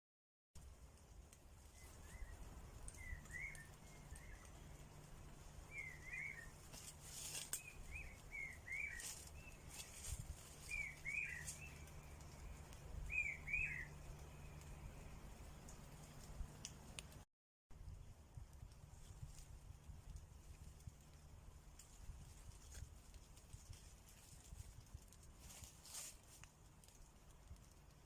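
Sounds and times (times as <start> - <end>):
soft crackles: 0.6 - 28.0
small bird chirping: 1.6 - 16.6.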